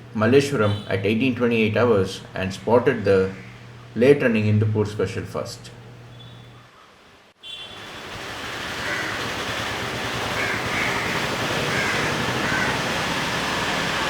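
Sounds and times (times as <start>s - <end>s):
steady rushing background noise: 7.9s - 14.0s
crows cawing: 8.7s - 9.4s, 10.2s - 13.1s.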